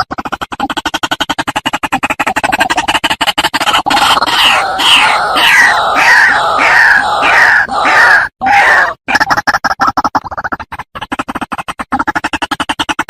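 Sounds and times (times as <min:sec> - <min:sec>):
bird calling: 0:03.9 - 0:09.0.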